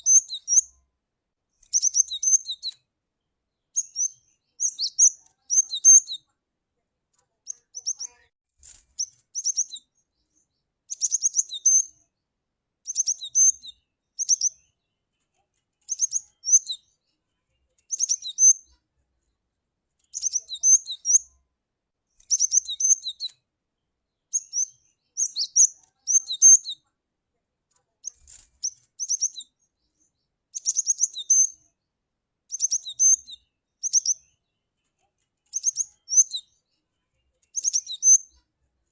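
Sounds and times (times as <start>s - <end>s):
bird chirping high and sharp: 0.0s - 0.8s, 1.6s - 2.8s, 3.8s - 6.3s, 7.5s - 10.0s, 10.9s - 12.0s, 12.8s - 14.6s, 15.9s - 17.0s, 17.9s - 18.8s, 20.1s - 21.3s, 22.2s - 23.4s, 24.3s - 26.8s, 28.0s - 29.6s, 30.5s - 31.7s, 32.5s - 34.2s, 35.5s - 36.6s, 37.5s - 38.4s.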